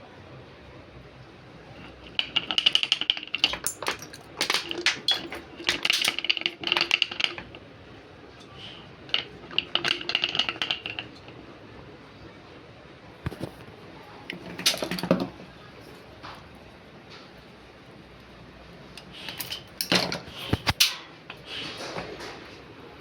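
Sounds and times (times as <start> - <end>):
hand tools clicking on car parts: 19.0 - 22.2.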